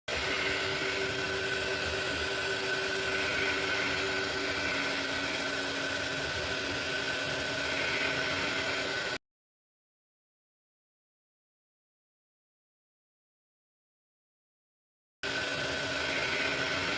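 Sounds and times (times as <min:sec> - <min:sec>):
printer motor whine: 0:00.1 - 0:09.2, 0:15.2 - 0:16.9.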